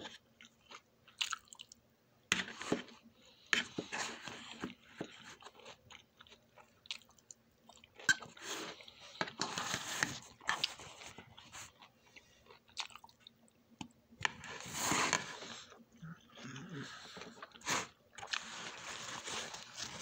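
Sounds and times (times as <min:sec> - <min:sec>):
person chewing food: 0:00.1 - 0:20.0.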